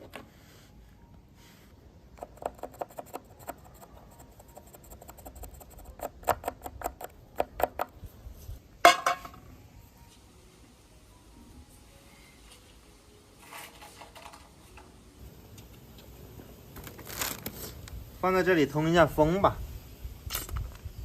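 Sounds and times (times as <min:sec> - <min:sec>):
hard objects clicking and tapping: 0:02.2 - 0:08.0.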